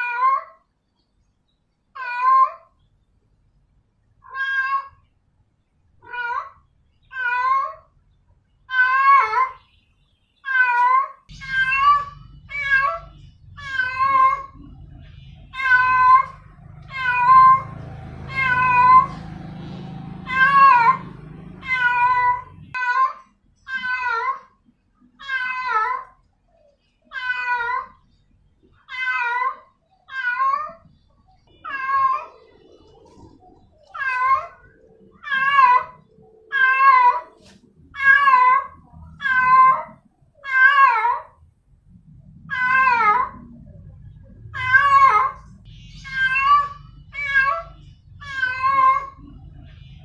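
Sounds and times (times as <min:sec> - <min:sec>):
cat meowing loudly: 0:04.2 - 0:05.0, 0:10.4 - 0:14.6, 0:15.5 - 0:19.2, 0:20.2 - 0:24.5, 0:25.2 - 0:26.2, 0:27.1 - 0:28.0, 0:33.9 - 0:41.3, 0:42.5 - 0:43.4, 0:46.0 - 0:49.2.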